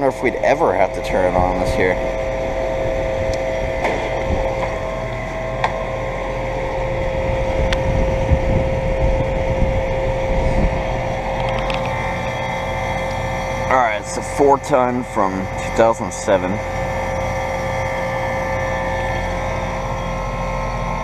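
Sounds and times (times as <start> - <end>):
air conditioner unit humming: 0.0 - 21.0
rushing air rumble: 1.1 - 14.1.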